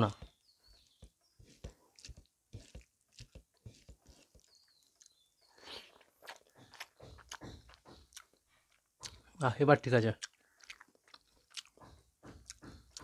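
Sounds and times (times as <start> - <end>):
fingers working rice on plate: 0.1 - 5.1
chewing and mouth clicks: 0.1 - 9.3, 10.2 - 13.0.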